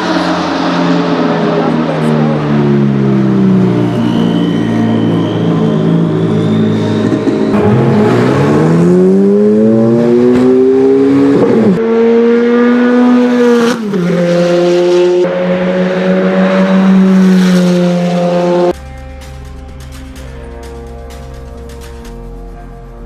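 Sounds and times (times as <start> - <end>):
car engine accelerating hard: 0.0 - 18.8
music: 7.5 - 9.0, 18.8 - 23.0.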